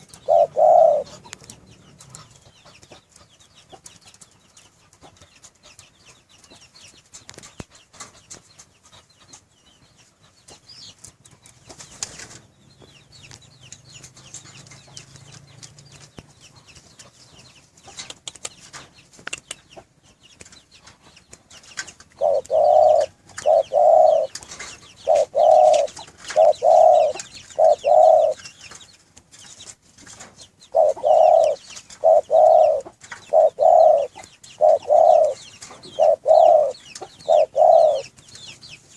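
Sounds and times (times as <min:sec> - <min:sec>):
dove cooing: 0:00.0 - 0:02.4, 0:22.2 - 0:28.5, 0:30.7 - 0:38.1
faint chirps and clicks: 0:00.0 - 0:38.9.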